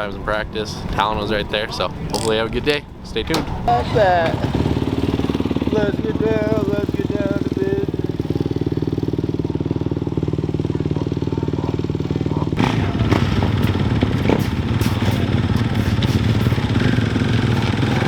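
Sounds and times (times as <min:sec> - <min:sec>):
dirt bike engine running: 0:03.7 - 0:18.0.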